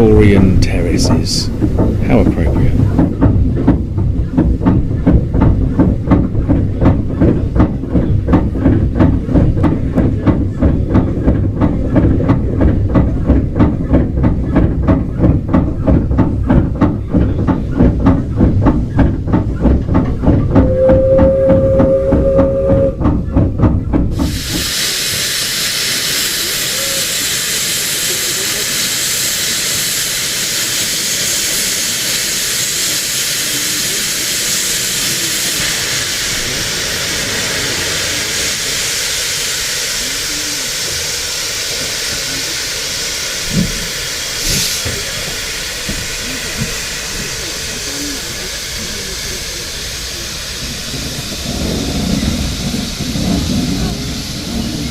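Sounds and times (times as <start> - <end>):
steam train chugging: 0.0 - 54.9
steam train whistle: 20.6 - 23.0
loud hiss of steam: 24.1 - 54.9.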